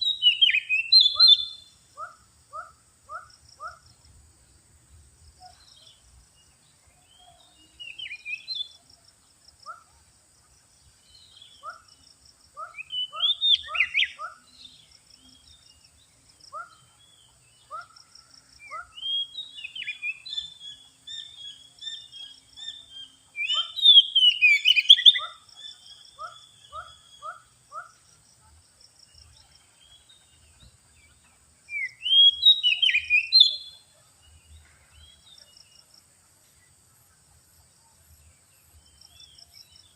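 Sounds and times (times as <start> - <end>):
bird singing whistled phrases: 0.0 - 1.8, 7.1 - 8.7, 12.6 - 14.4, 18.6 - 25.4, 31.7 - 33.8.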